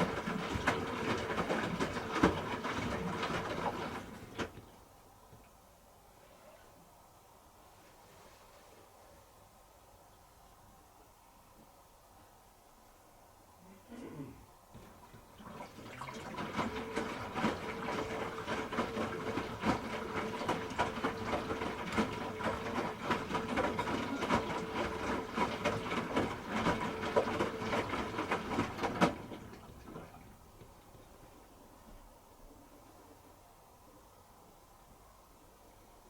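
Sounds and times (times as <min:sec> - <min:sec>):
washing machine motor hum: 0:00.0 - 0:05.4, 0:14.0 - 0:36.0
laundry and water sloshing: 0:00.0 - 0:05.5, 0:14.7 - 0:32.9.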